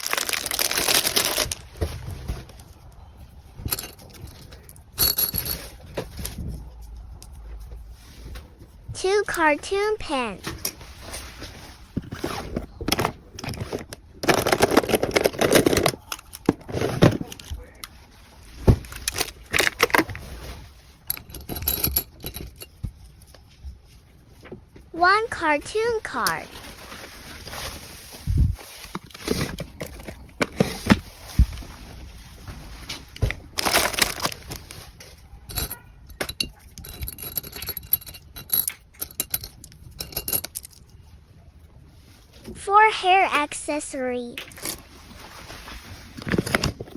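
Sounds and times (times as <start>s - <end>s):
plastic packaging crinkling: 0.0s - 1.8s, 33.4s - 35.0s.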